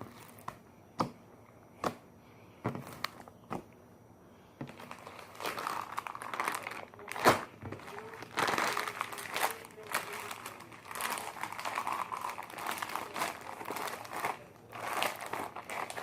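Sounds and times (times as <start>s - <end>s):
slime squishing and crackling: 4.7s - 16.0s.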